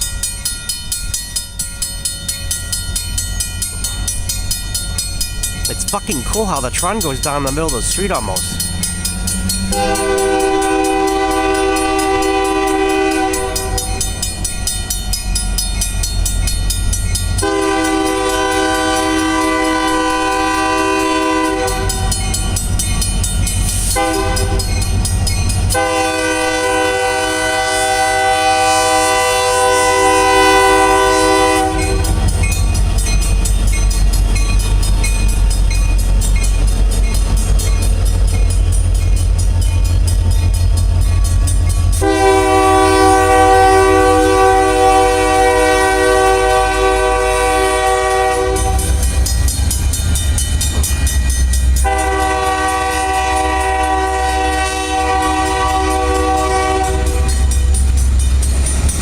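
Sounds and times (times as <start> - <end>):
train rumble: 0.0 - 59.0
locomotive air horn blasts: 9.7 - 14.1, 17.4 - 22.1, 24.0 - 24.6, 25.7 - 32.1, 42.0 - 49.0, 51.8 - 57.5.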